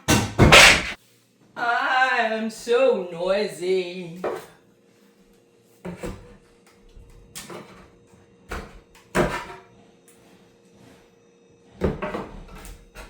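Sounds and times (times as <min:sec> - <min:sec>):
boards knocking and clattering: 0:00.1 - 0:01.0.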